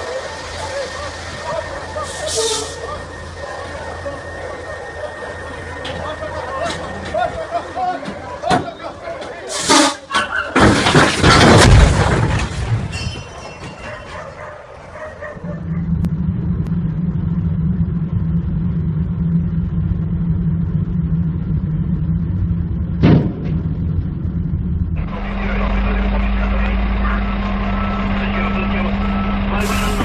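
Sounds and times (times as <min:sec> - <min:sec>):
heavy vehicle engine droning: 0:00.0 - 0:30.0
loud rough burst of noise: 0:15.7 - 0:30.0.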